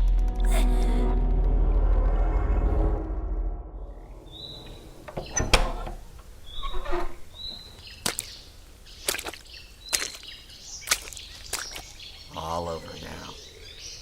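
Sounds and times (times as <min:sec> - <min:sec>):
birds chirping: 0:03.9 - 0:14.0.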